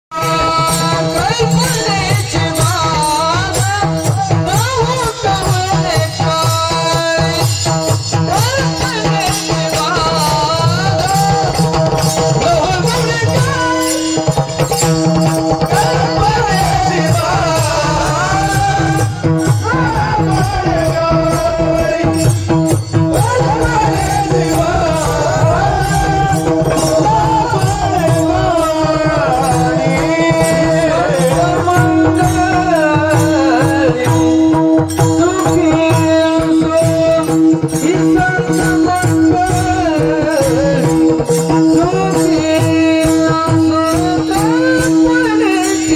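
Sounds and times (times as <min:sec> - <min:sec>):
man singing: 0:00.0 - 0:45.9
drum rhythm: 0:00.1 - 0:45.9
held instrumental tones: 0:00.1 - 0:45.9
jingling percussion: 0:00.1 - 0:45.9.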